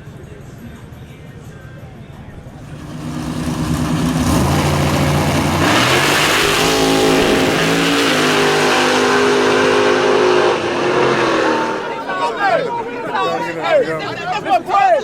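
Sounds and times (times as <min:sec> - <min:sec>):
drag racing car engine revving: 0:02.6 - 0:12.6.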